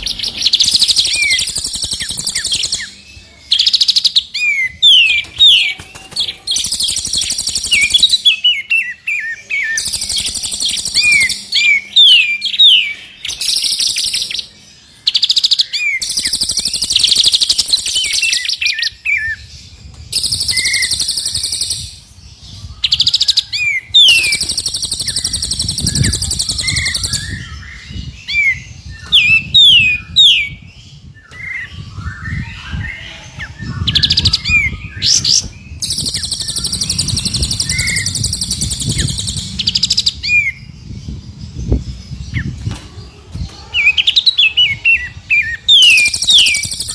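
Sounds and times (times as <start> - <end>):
whistled bird chirps: 20.1 - 21.9, 22.7 - 30.6, 33.8 - 40.6, 45.4 - 46.9
high buzzing bird trills: 35.7 - 40.7.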